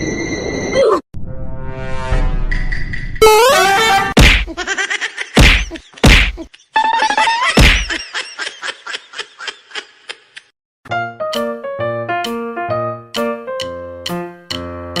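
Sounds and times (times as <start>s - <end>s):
loud whacks: 4.2s - 4.6s, 5.4s - 6.4s, 7.6s - 8.0s.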